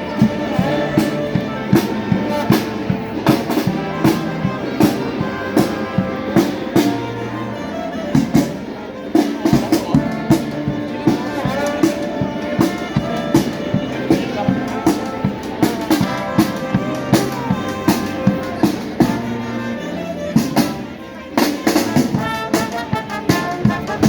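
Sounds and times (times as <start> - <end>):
brass horns playing melody: 0.0 - 8.6, 9.7 - 21.0, 21.6 - 24.0
bass drum and drum kit beat: 9.6 - 19.5, 20.4 - 24.0.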